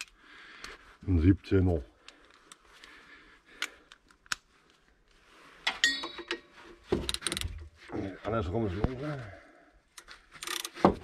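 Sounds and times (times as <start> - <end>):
metal hand tools clinking: 5.7 - 6.5.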